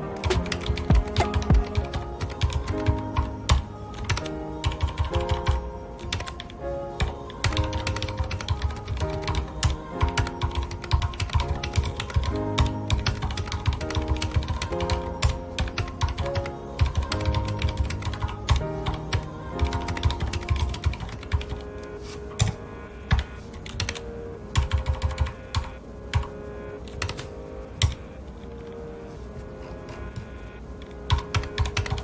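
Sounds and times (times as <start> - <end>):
soft background music: 0.0 - 32.0
typing on mechanical keyboard: 0.2 - 6.4, 7.0 - 21.6, 22.4 - 24.0, 27.0 - 28.0, 31.1 - 32.0.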